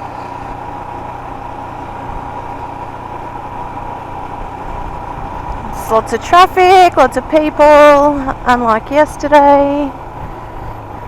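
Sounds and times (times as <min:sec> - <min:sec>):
motorcycle engine running: 0:00.0 - 0:11.0
road and wind noise: 0:00.0 - 0:11.0
steady high whine: 0:00.0 - 0:11.0.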